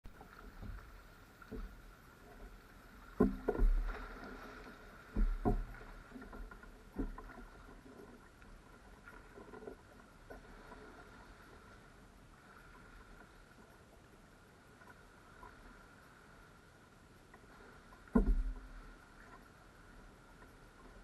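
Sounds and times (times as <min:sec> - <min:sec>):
paddle splashes: 0:00.0 - 0:21.0
hollow knocks on kayak hull: 0:03.2 - 0:03.9, 0:05.1 - 0:05.9, 0:18.1 - 0:18.8.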